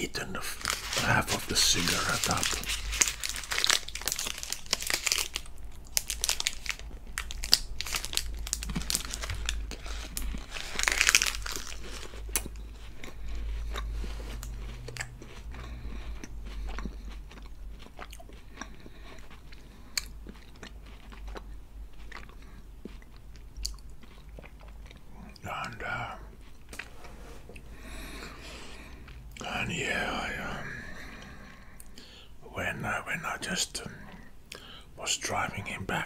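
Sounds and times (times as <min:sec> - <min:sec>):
crunching chocolate wafer: 0:00.1 - 0:26.9.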